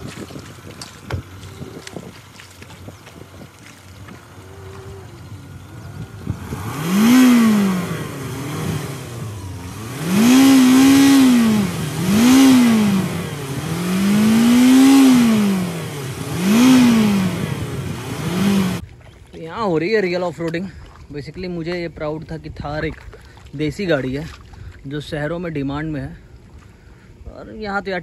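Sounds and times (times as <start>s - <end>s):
off-road engine revving: 0.0s - 18.8s.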